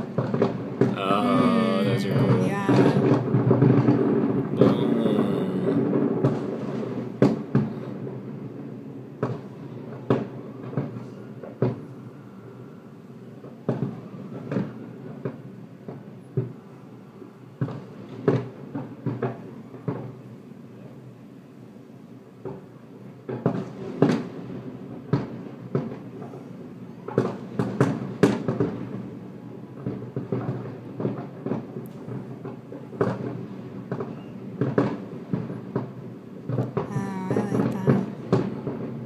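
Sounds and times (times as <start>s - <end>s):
fireworks booming: 0.0s - 11.0s, 29.8s - 39.0s.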